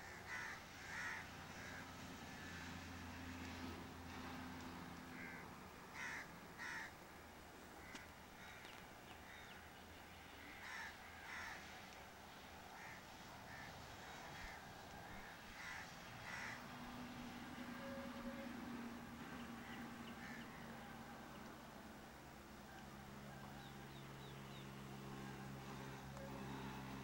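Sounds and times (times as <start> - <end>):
low steady hiss: 0.0 - 27.0
faint bird calls: 7.8 - 11.9, 22.7 - 27.0.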